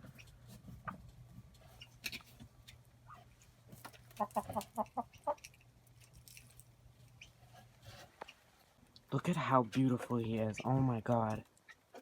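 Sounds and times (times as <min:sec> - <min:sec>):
chicken clucking: 0:03.1 - 0:05.6.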